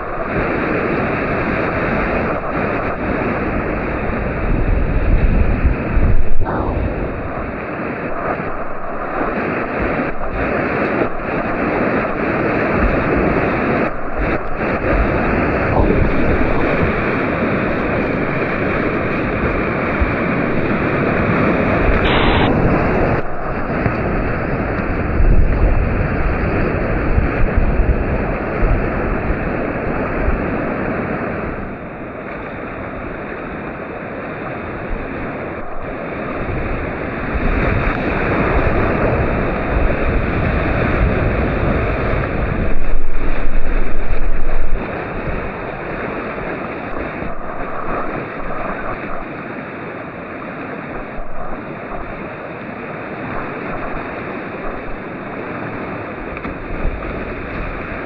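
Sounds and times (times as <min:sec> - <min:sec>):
loud water rush: 0:00.0 - 0:58.0
whitewater rushing through rapids: 0:00.0 - 0:58.0
wind buffeting microphone: 0:00.0 - 0:58.0.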